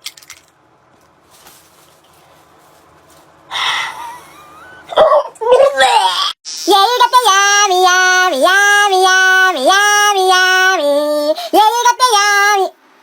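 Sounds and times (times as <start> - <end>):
high voice singing held notes: 6.6 - 12.7.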